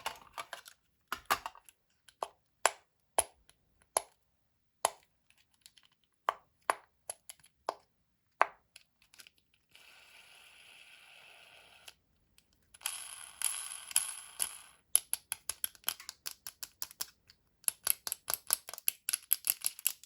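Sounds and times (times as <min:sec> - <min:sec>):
plastic clicks and snaps: 0:15.0 - 0:20.0.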